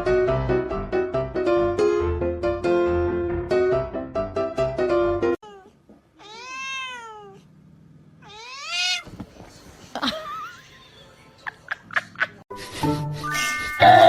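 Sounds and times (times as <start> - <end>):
cat meowing: 5.4 - 7.5, 8.2 - 9.1.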